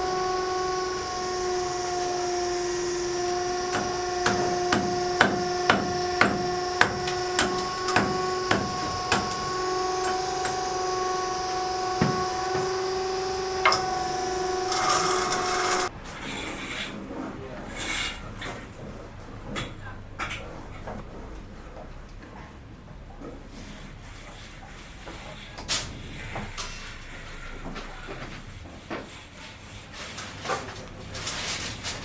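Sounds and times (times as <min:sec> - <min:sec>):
hammer blows: 0:03.7 - 0:11.0, 0:11.7 - 0:15.9.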